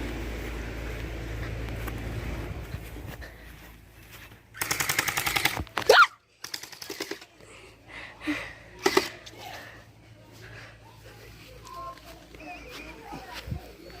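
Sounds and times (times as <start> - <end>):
gel blaster firing bursts: 4.6 - 5.7
person crying out: 5.9 - 6.2.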